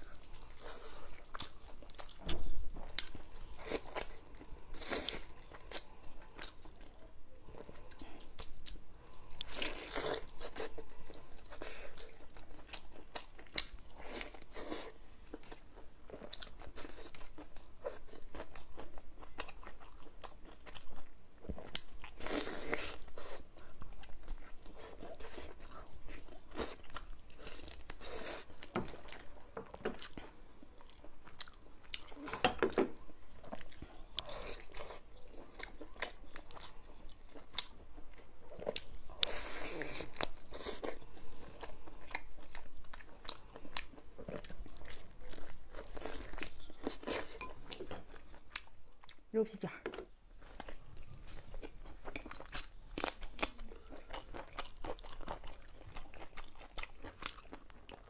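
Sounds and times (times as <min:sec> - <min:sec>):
close-up chewing and biting meat: 0:00.0 - 0:49.2, 0:50.4 - 0:58.0.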